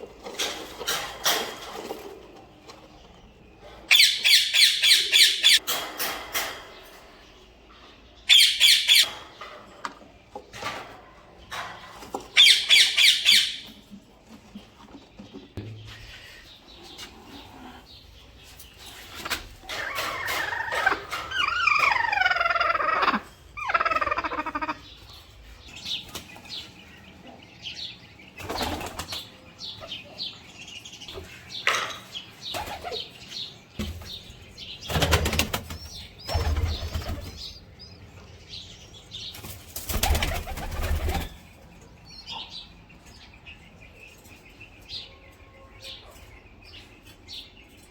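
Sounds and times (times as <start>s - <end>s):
bird chirps and calls: 3.9s - 5.6s, 8.2s - 9.2s, 12.4s - 13.8s, 18.8s - 39.4s
birds flapping wings: 34.8s - 37.4s, 39.4s - 41.4s.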